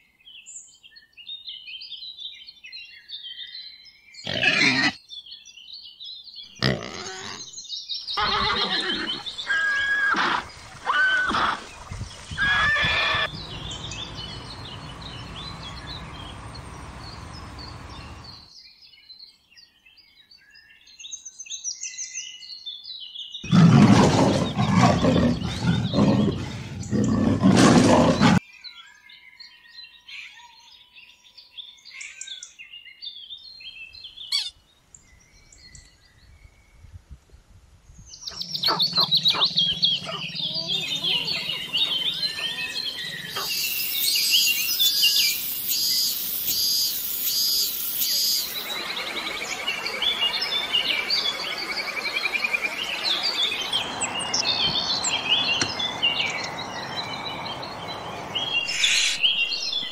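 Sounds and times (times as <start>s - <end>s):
bird chirps: 12.4s - 18.5s, 31.9s - 36.6s, 38.2s - 59.9s
cicada buzzing: 13.0s - 18.4s, 40.1s - 50.7s
dense burst of animal sound: 23.5s - 28.4s, 39.9s - 53.9s.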